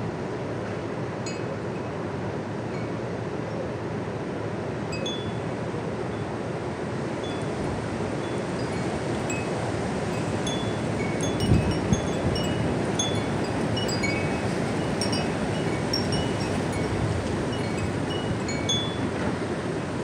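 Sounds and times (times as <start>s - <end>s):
strong wind buffeting microphone: 7.6s - 20.0s
metal wind chimes ringing: 8.2s - 19.2s.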